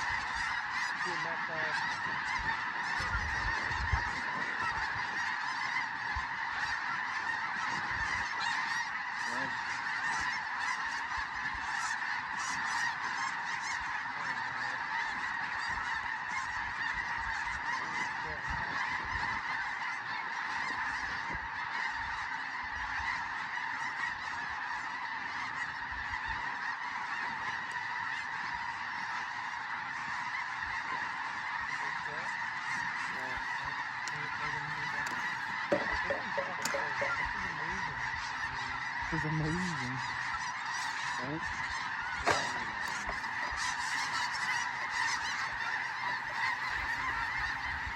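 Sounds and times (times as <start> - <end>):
flock of geese honking: 0.0 - 47.9.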